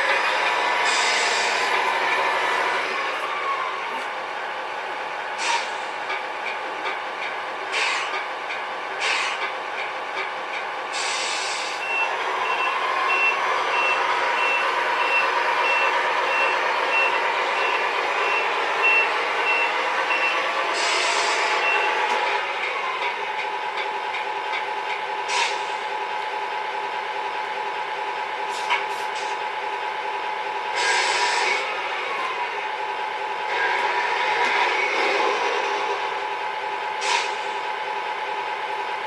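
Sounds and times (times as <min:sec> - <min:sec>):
simulated truck engine running: 0:00.0 - 0:39.0
reversing beeper: 0:11.8 - 0:22.0.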